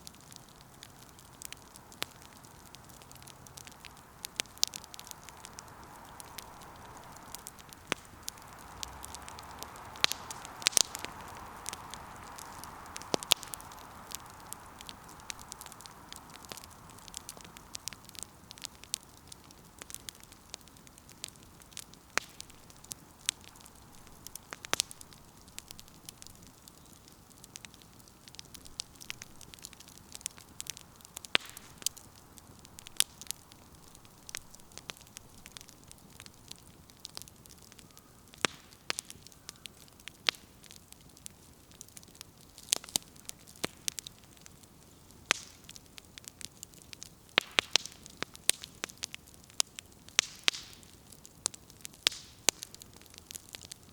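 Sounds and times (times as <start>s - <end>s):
soft hiss: 0.0s - 51.2s
campfire crackling and popping: 0.0s - 53.9s.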